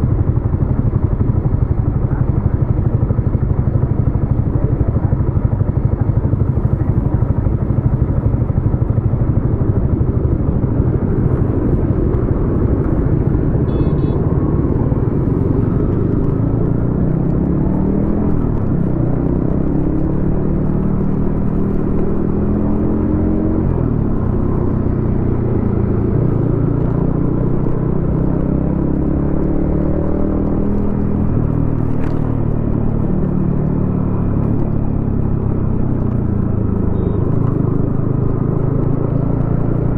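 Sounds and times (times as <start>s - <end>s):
motorcycle engine accelerating: 0.0s - 39.9s
short horn beep: 13.6s - 14.3s, 36.9s - 37.2s.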